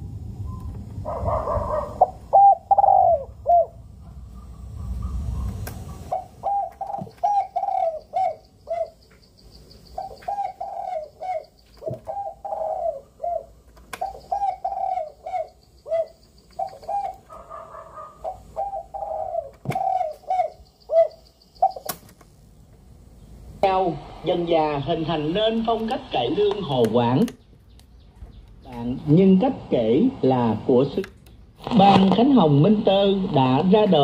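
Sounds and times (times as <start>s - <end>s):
dove cooing: 0.4s - 22.0s
sharp clicks: 21.8s - 22.3s.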